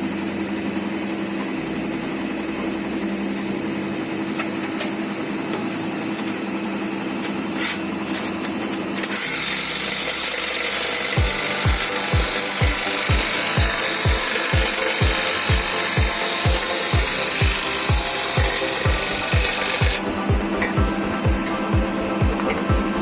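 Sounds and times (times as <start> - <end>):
engine humming: 0.0 - 23.0
loud hiss: 9.2 - 23.0
thudding beat: 11.2 - 23.0.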